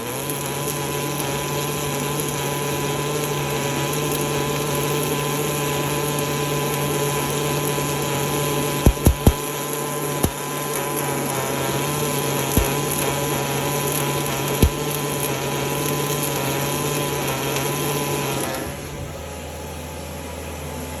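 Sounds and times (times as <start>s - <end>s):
welding arc crackling: 0.0s - 21.0s
sharp knocks: 8.9s - 9.4s.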